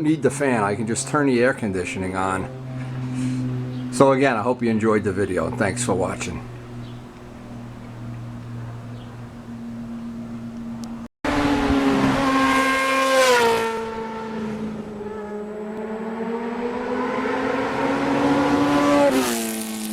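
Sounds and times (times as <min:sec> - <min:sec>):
steady low hum: 0:00.0 - 0:11.1
motorcycle engine revving: 0:00.0 - 0:19.9.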